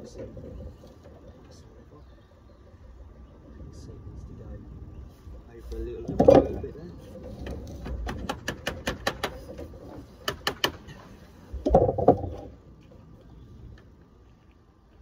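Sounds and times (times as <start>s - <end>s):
hand tool tapping sheet lead: 7.8s - 9.4s, 10.2s - 10.8s.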